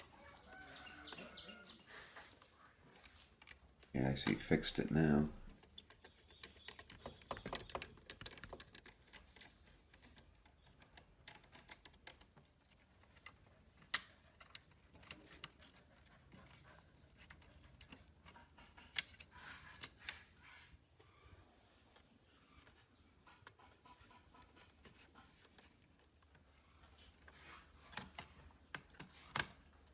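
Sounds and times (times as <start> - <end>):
small hard objects clicking: 3.4 - 15.7.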